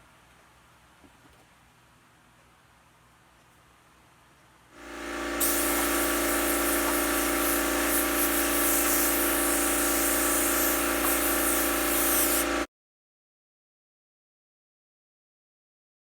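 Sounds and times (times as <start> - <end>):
small motor humming: 4.8 - 12.7.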